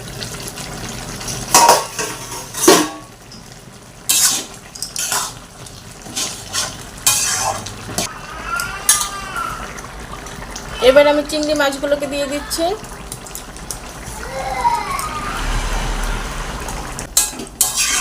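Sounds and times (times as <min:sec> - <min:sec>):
metal spatula scraping pan: 0:04.1 - 0:05.4, 0:06.0 - 0:08.1, 0:17.2 - 0:18.0.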